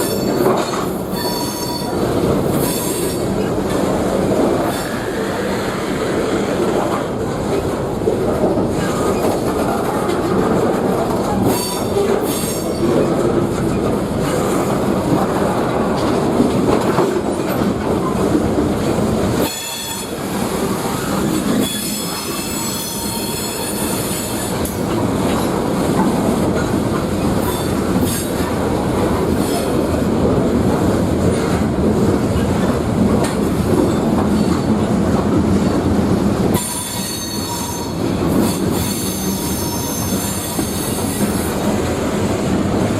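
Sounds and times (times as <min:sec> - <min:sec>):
steel wheels squealing on rails: 0:00.0 - 0:03.8, 0:04.6 - 0:07.2, 0:11.2 - 0:14.6, 0:19.4 - 0:25.6, 0:26.6 - 0:28.5, 0:29.2 - 0:30.0, 0:36.5 - 0:41.8
freight train rumbling past: 0:00.0 - 0:42.9.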